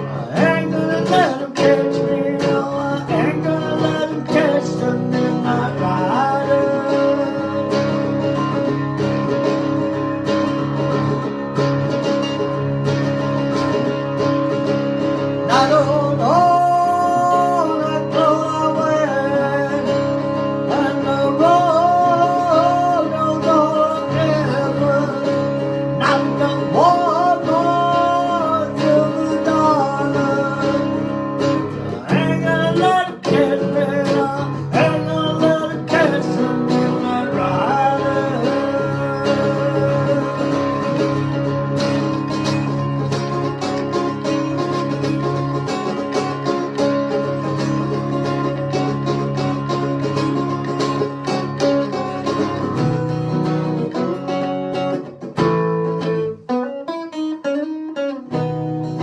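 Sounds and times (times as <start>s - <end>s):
person singing: 0.0s - 9.4s, 15.2s - 45.3s
guitar strumming: 0.0s - 59.0s.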